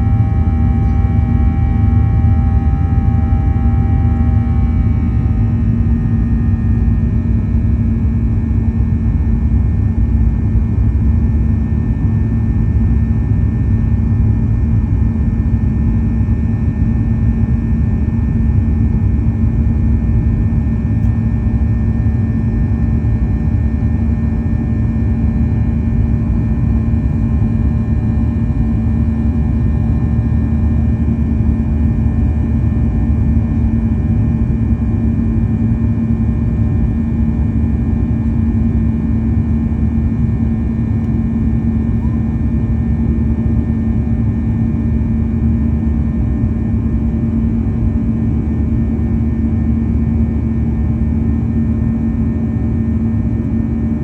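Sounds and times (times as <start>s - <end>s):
steady cabin hum: 0.0s - 8.5s
aircraft engines and airflow rumble: 0.0s - 54.0s.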